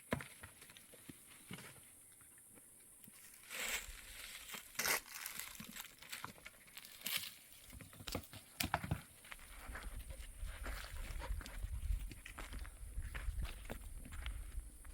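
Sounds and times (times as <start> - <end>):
rustling and crinkling: 3.1 - 14.6.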